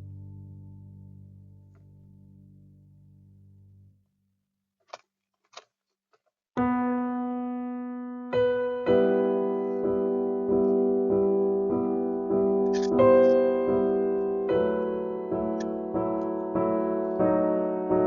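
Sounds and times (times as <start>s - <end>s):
gentle solo piano music: 6.6s - 18.0s.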